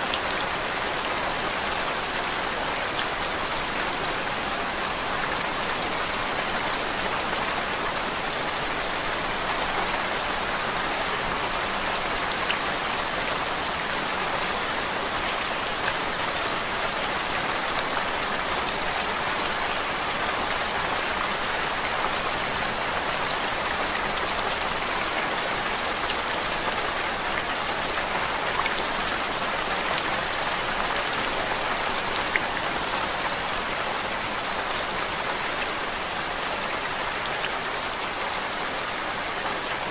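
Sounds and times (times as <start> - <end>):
rain-like white noise hiss: 0.0 - 39.9.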